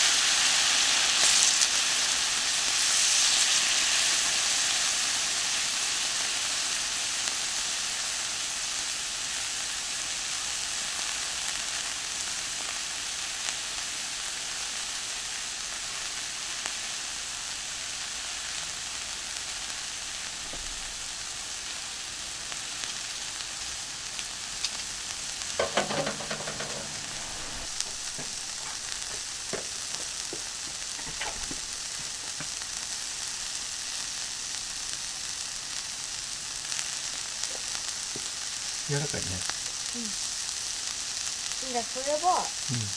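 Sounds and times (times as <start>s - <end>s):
beef sizzling on a griddle: 0.0s - 42.9s
short clatter: 25.6s - 29.8s.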